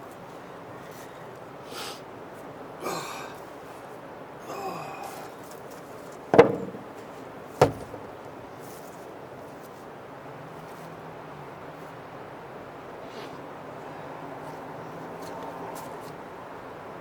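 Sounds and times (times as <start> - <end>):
background hiss: 0.0 - 10.7
faint breathy sounds: 4.4 - 5.4
sharp knocks: 6.3 - 8.2.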